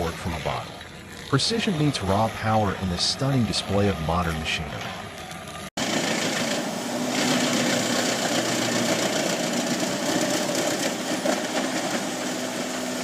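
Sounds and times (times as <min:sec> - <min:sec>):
steady hum: 0:00.0 - 0:08.4
wood chipper shredding logs: 0:00.0 - 0:13.0.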